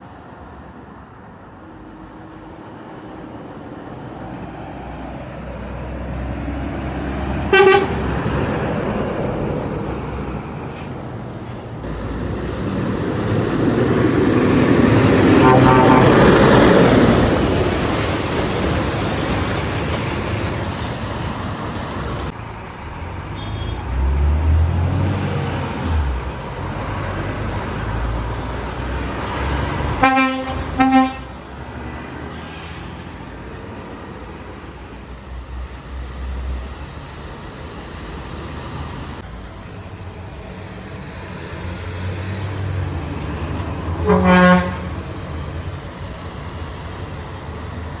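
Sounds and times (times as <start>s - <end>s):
trucks passing: 0.0s - 48.0s
low-pitched horn blast: 7.5s - 8.2s, 15.2s - 17.0s, 30.0s - 31.5s, 44.0s - 45.1s
truck horn toots: 7.5s - 8.2s, 15.3s - 16.7s, 23.4s - 23.9s, 30.0s - 31.4s, 44.0s - 45.0s.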